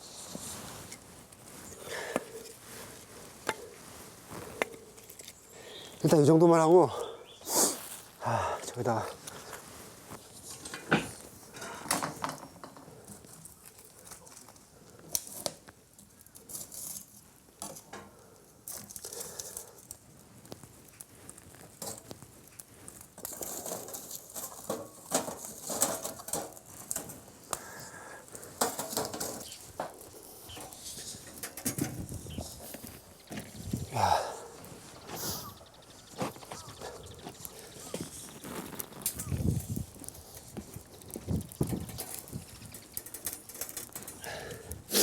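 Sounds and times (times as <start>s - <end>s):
rustling: 0.0s - 6.6s, 8.9s - 45.0s
firewood knocking and clattering: 10.5s - 14.5s, 22.9s - 27.8s, 28.4s - 35.4s, 36.2s - 44.5s.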